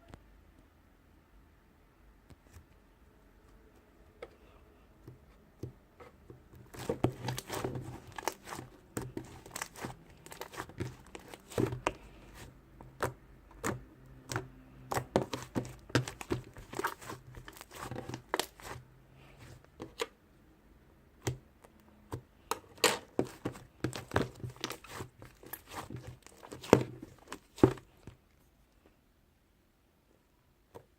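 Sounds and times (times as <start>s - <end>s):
crinkling and tearing: 6.6s - 12.5s, 15.0s - 18.8s, 23.1s - 28.0s.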